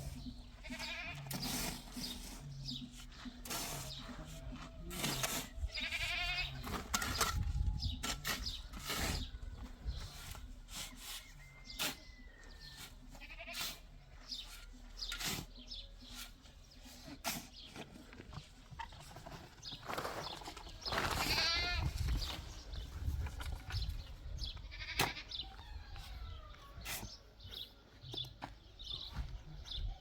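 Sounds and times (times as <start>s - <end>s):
goats bleating: 0.6s - 1.3s, 5.7s - 6.6s, 13.2s - 13.9s, 21.2s - 21.9s, 24.6s - 25.3s.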